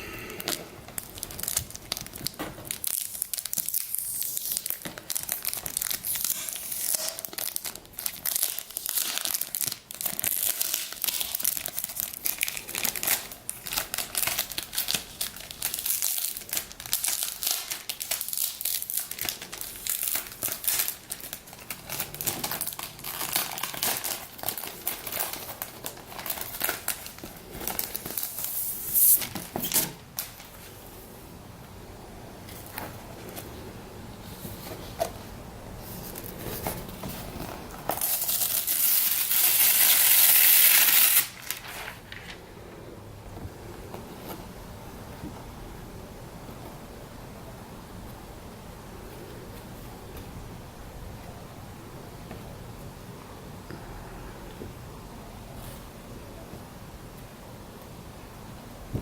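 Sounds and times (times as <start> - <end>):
plastic packaging crinkling: 0.4 - 30.8, 34.6 - 42.4.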